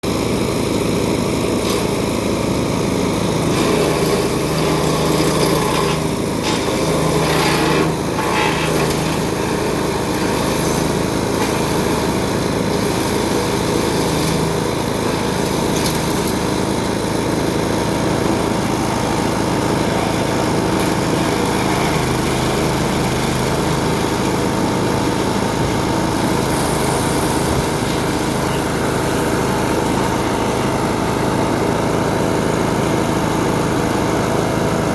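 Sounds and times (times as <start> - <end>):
shredder engine drone: 0.0 - 34.9.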